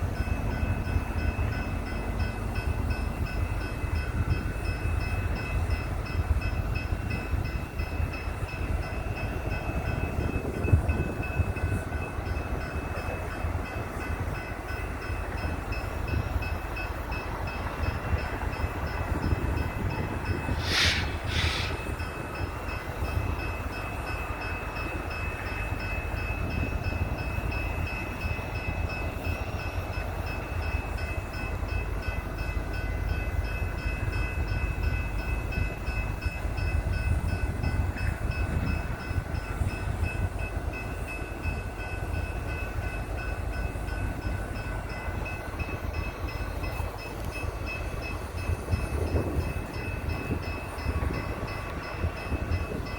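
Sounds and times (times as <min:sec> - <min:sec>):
train rumble: 0:00.0 - 0:52.9
sharp hissing bursts: 0:20.4 - 0:22.1.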